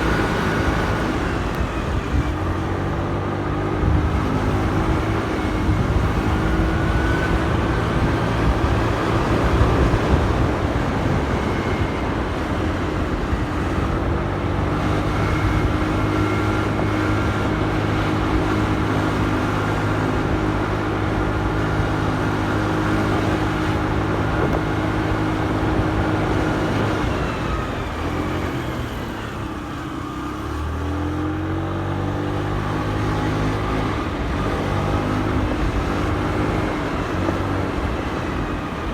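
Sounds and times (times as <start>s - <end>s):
motorcycle engine running: 0.0s - 30.4s
road and wind noise: 0.0s - 38.9s.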